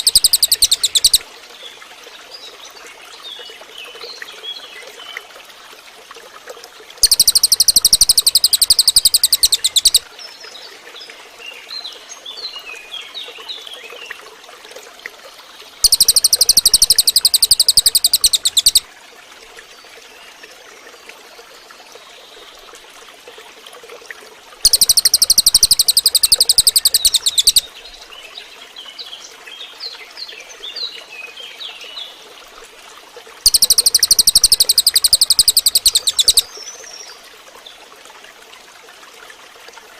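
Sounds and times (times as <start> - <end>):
bird buzzy trill: 0.0 - 1.2, 7.0 - 10.0, 15.8 - 18.8, 24.6 - 27.6, 33.5 - 36.4
short bird chirps: 0.0 - 1.2, 7.0 - 10.0, 15.8 - 18.8, 24.6 - 27.7, 33.4 - 36.5
running water trickling: 0.0 - 39.9.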